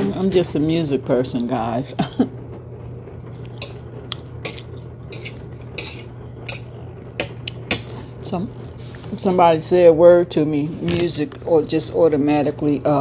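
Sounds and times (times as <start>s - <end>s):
low steady hum: 0.0s - 13.0s
mouth smacks and chewing: 3.4s - 7.6s.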